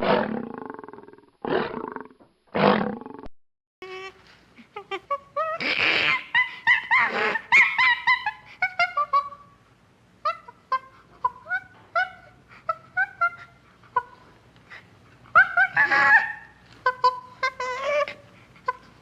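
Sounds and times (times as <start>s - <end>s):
animal yelping: 4.9s - 9.5s, 10.2s - 19.0s.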